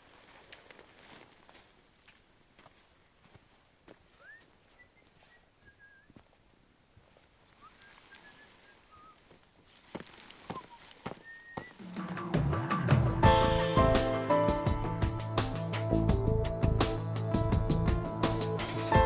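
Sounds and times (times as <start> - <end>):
faint whistled notes: 4.2 - 6.2, 7.6 - 9.2, 10.5 - 11.8.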